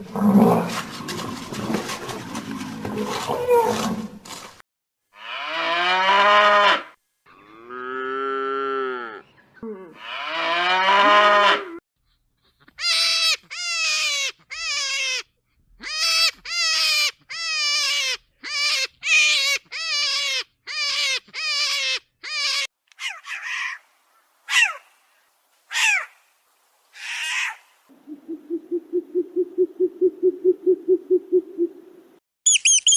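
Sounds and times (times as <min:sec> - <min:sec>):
cow mooing: 0:05.2 - 0:11.8.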